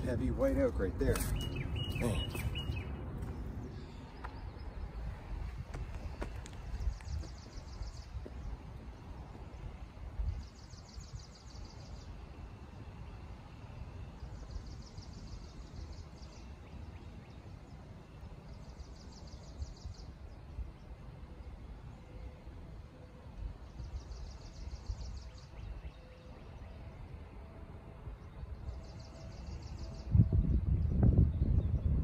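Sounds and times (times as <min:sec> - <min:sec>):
songbird trilling: 0:00.0 - 0:03.0
low background rumble: 0:00.0 - 0:32.0.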